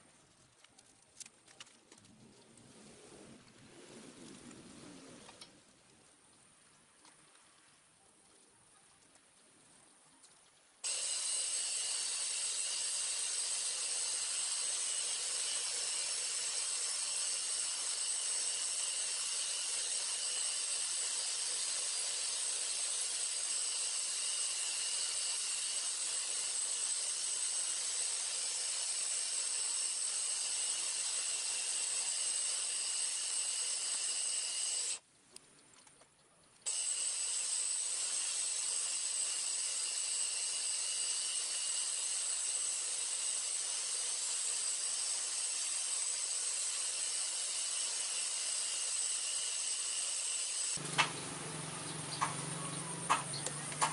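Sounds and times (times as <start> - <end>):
belt sander grinding steel: 10.8 - 35.0, 36.7 - 53.9.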